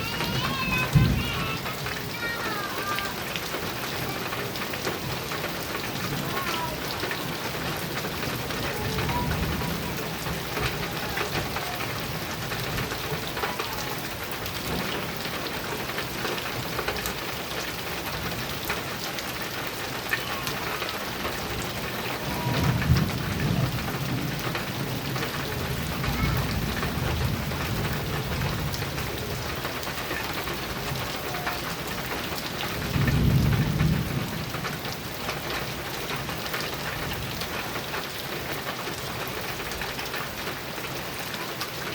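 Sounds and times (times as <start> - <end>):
thunder rumbling: 0.0 - 2.2, 2.8 - 16.8, 20.3 - 35.8
rain on a metal roof: 0.0 - 41.9.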